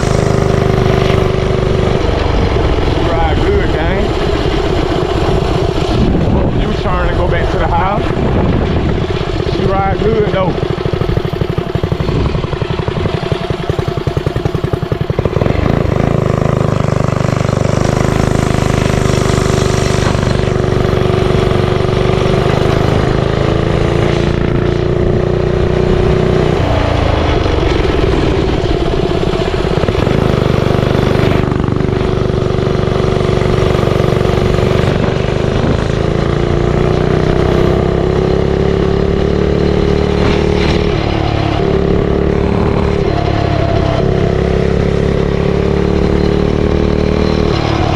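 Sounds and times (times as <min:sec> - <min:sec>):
small engine chugging: 0:08.9 - 0:40.3.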